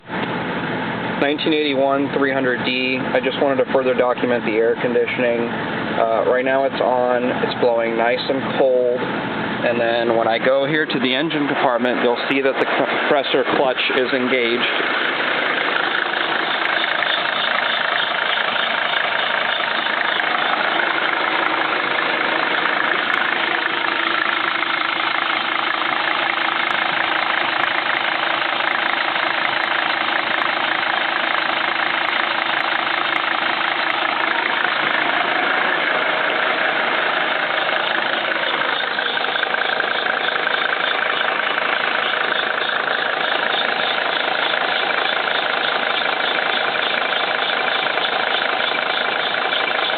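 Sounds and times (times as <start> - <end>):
air conditioning compressor running: 0.0 - 49.9
diesel engine idling with clatter: 0.0 - 49.9.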